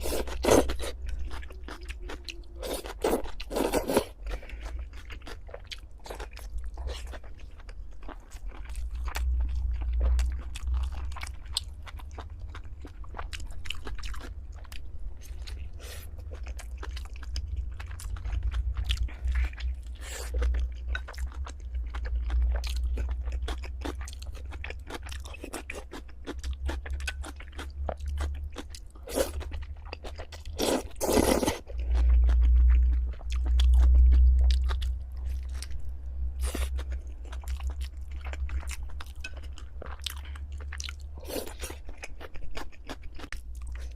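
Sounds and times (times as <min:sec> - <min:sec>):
close chewing and crunching: 0:00.0 - 0:43.9
low rumble: 0:08.6 - 0:25.3, 0:26.4 - 0:41.8.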